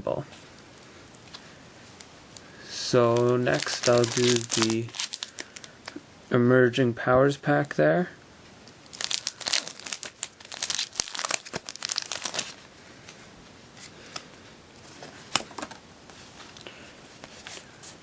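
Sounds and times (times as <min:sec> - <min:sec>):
foil wrapper tearing and crinkling: 0:02.8 - 0:05.7, 0:08.8 - 0:12.6.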